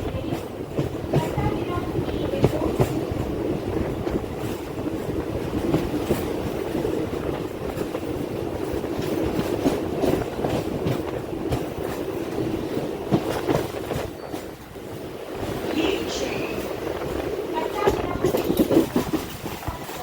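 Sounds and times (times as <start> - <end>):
train rumbling along track: 0.0 - 20.0
wheel clicks over rail joints: 17.8 - 20.0.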